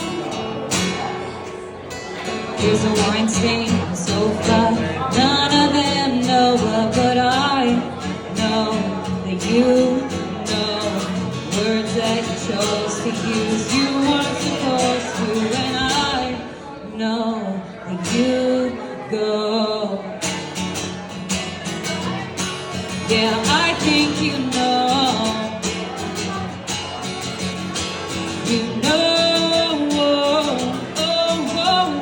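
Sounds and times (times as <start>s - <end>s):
acoustic guitar strumming: 0.0s - 17.0s, 18.0s - 32.0s
person singing: 2.6s - 20.1s, 22.9s - 25.9s, 28.2s - 32.0s.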